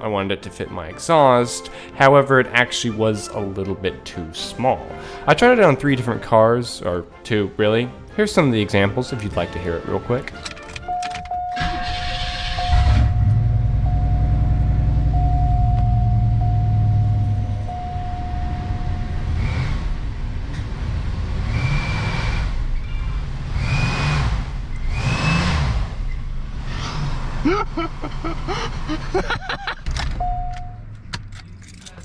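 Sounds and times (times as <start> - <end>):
car engine revving: 10.2 - 32.0.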